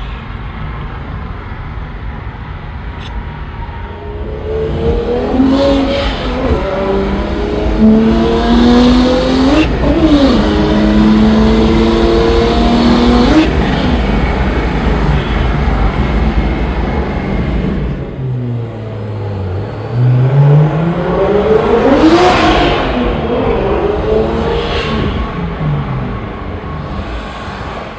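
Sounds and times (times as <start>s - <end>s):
car engine accelerating hard: 4.1s - 15.4s, 18.6s - 27.9s.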